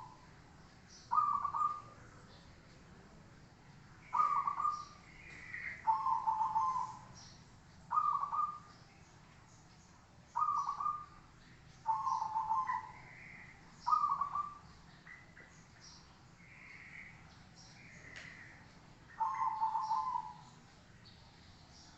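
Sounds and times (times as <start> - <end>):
faint high bird calls: 0.0 - 2.6, 4.0 - 21.9
dove cooing: 1.1 - 2.3, 4.1 - 7.2, 7.9 - 8.7, 10.4 - 11.2, 11.8 - 14.6, 19.2 - 20.6.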